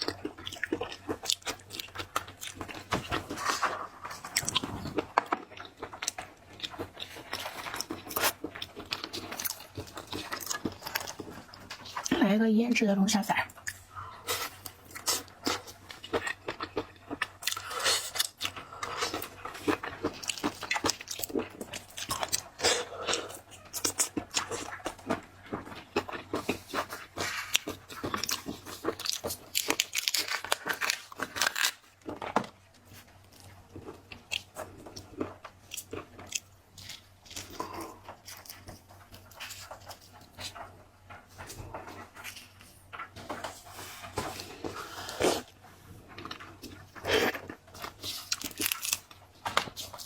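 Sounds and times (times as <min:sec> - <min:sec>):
crunching and chewing shellfish: 0:00.0 - 0:12.3, 0:13.2 - 0:50.0.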